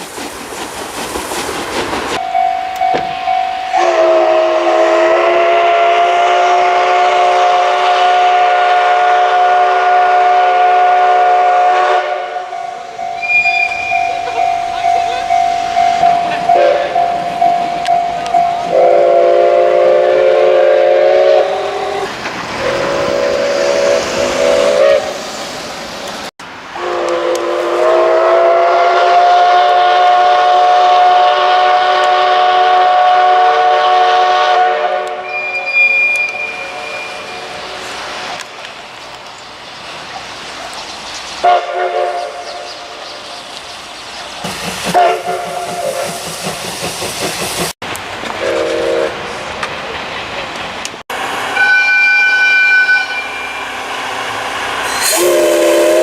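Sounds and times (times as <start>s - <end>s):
train running noise: 0.0s - 56.0s
steam locomotive whistle: 2.2s - 25.2s, 26.8s - 37.9s, 41.4s - 42.8s, 44.8s - 46.4s, 48.4s - 49.2s, 51.1s - 56.0s.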